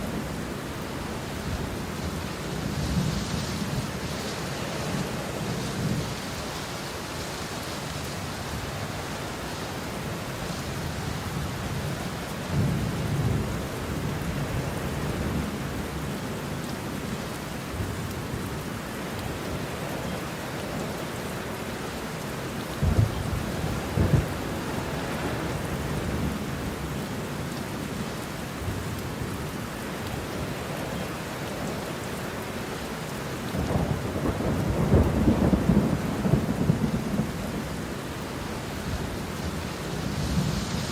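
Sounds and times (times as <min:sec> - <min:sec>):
steady rain: 0:00.0 - 0:40.9
rolling thunder: 0:22.8 - 0:26.4, 0:33.6 - 0:37.7.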